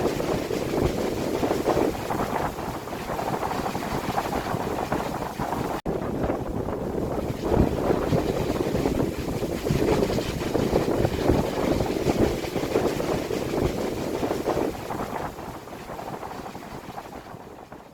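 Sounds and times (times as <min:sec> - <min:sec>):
wind buffeting microphone: 0:00.0 - 0:17.9.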